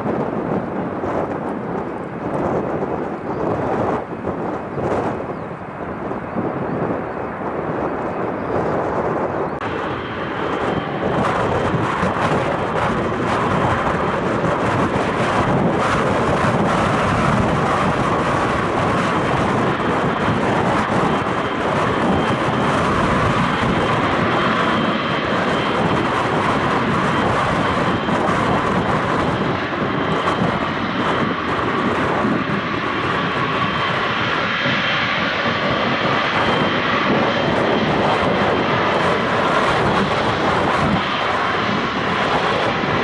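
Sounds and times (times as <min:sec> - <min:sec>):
aircraft engines running: 0:00.0 - 0:43.0.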